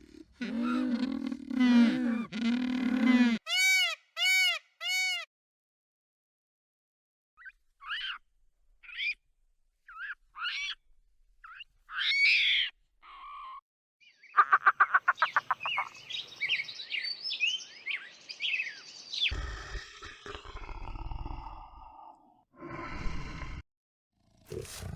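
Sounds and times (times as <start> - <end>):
birds calling: 14.1 - 20.4.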